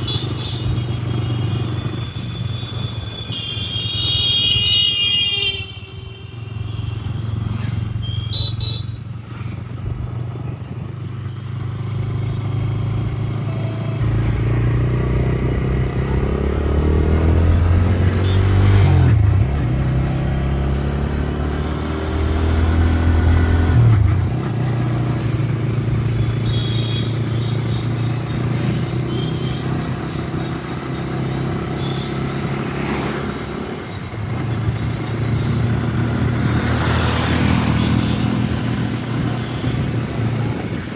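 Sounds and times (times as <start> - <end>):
road noise: 0.0 - 40.9
vehicle engine accelerating: 11.7 - 26.1.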